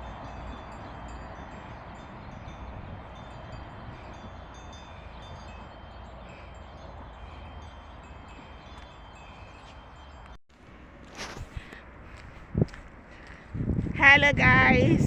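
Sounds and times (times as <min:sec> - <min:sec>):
chimes ringing: 0:00.0 - 0:10.4.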